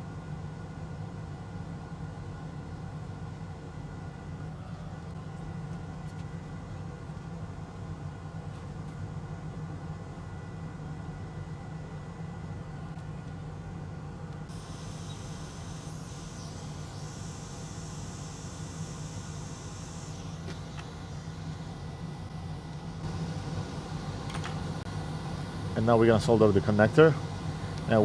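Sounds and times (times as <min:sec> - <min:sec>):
high hiss: 0:14.5 - 0:28.0
machine hum: 0:14.5 - 0:28.0.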